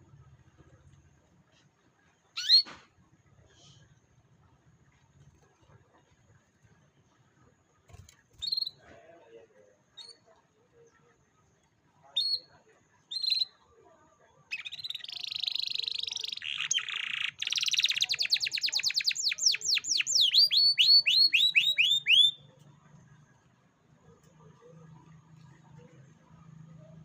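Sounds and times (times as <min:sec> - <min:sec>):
canary singing: 0:02.4 - 0:02.7, 0:08.4 - 0:08.8, 0:13.1 - 0:13.5, 0:14.5 - 0:22.6.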